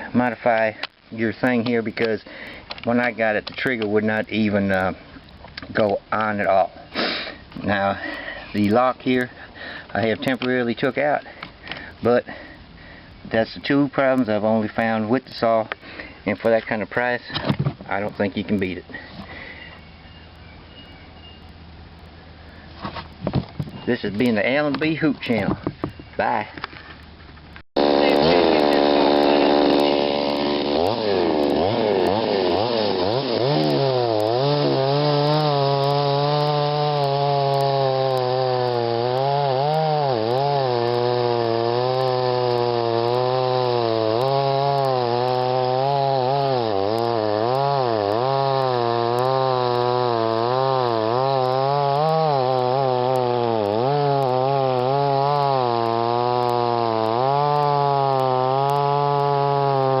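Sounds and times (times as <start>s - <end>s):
chainsaw cutting wood: 7.0s - 12.5s, 27.8s - 60.0s.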